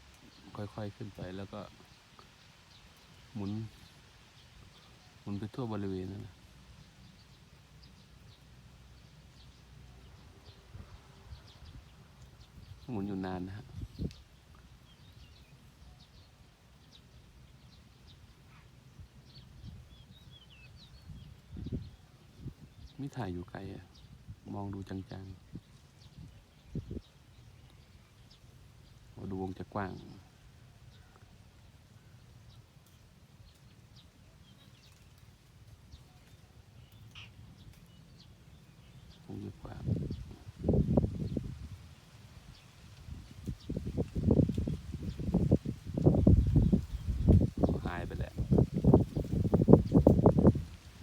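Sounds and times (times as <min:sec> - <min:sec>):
bird chirps: 0:35.9 - 0:39.4.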